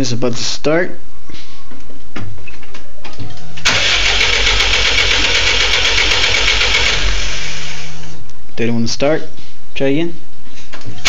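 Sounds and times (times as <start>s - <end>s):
starter motor cranking engine: 3.7s - 8.0s.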